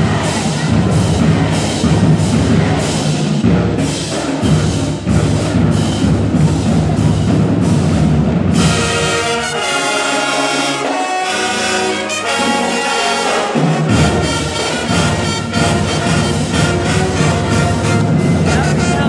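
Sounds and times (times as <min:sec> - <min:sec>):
marching band drums: 0:00.0 - 0:19.0
brass sustained chords: 0:08.5 - 0:19.0.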